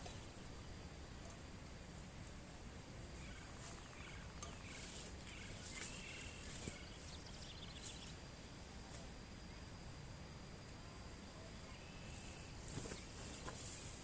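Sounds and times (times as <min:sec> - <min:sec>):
faint background hiss: 0:00.0 - 0:14.0
birds chirping: 0:03.1 - 0:08.6.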